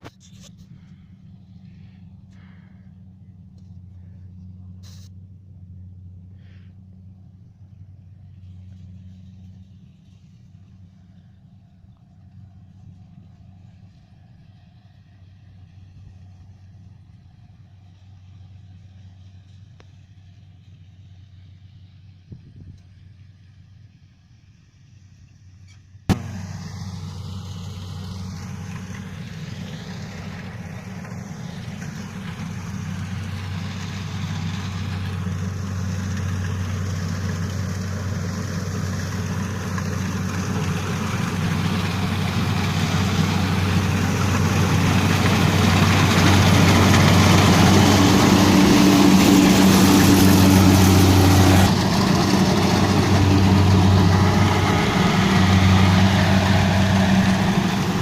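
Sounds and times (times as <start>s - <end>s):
diesel engine hum: 0.0s - 58.0s.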